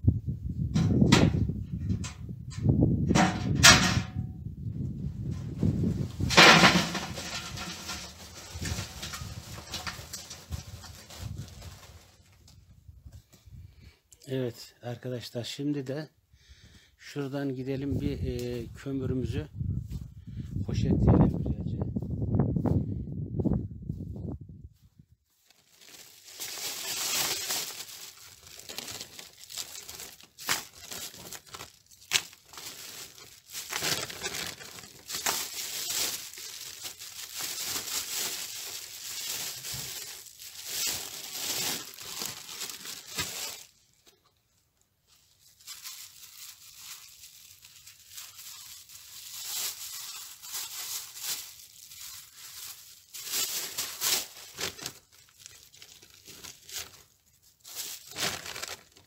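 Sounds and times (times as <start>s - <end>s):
plastic bags crinkling: 6.2s - 12.4s, 25.4s - 44.2s, 45.1s - 59.0s
coal knocking: 6.3s - 10.4s.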